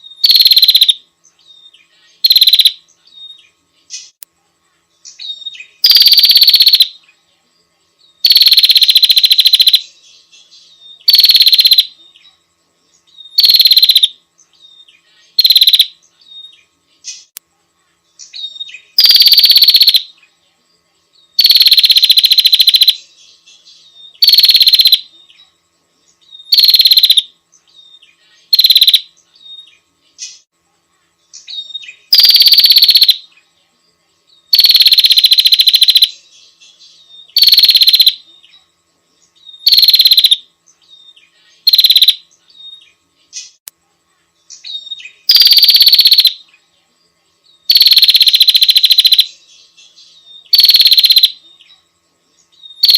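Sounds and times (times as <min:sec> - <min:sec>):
bird high-pitched trills: 0:00.0 - 0:01.0, 0:01.6 - 0:04.2, 0:05.0 - 0:07.1, 0:08.2 - 0:12.2, 0:13.1 - 0:17.4, 0:18.2 - 0:20.2, 0:21.3 - 0:25.4, 0:26.2 - 0:30.5, 0:31.4 - 0:33.3, 0:34.4 - 0:38.3, 0:39.4 - 0:43.6, 0:44.5 - 0:46.5, 0:47.6 - 0:51.7, 0:52.5 - 0:52.9.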